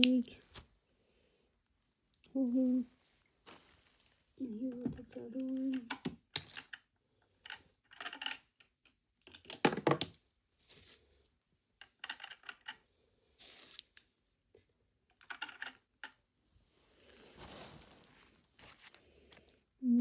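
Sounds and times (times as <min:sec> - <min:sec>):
plastic toys clicking and rattling: 0:04.6 - 0:10.2, 0:11.8 - 0:12.9, 0:15.1 - 0:16.2.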